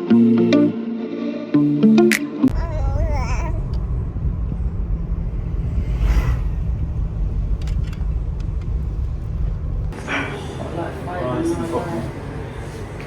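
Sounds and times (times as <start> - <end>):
car rumbling in motion: 2.5 - 10.7.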